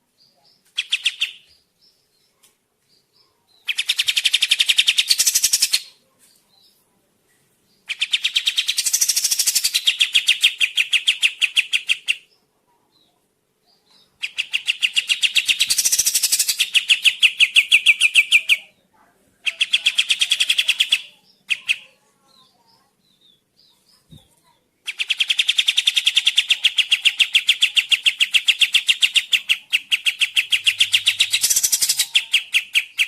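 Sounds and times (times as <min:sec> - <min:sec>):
songbird trilling: 0:14.2 - 0:18.6, 0:24.9 - 0:33.0.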